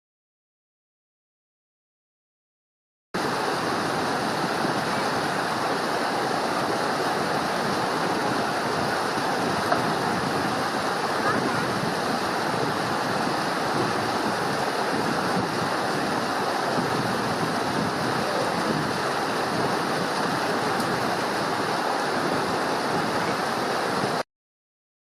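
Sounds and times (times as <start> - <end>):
rushing water: 3.2 - 24.2.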